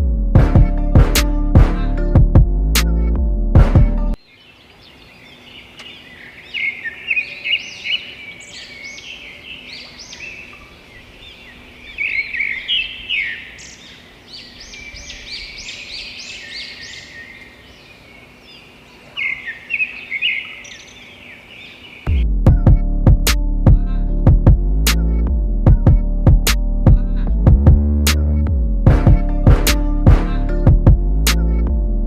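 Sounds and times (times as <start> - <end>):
birds chirping and singing: 4.1 - 22.2.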